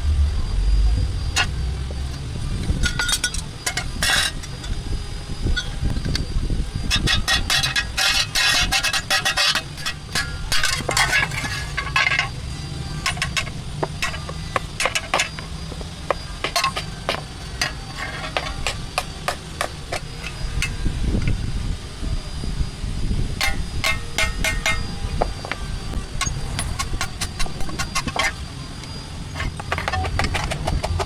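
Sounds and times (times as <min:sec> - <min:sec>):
low hum: 0:00.0 - 0:08.9.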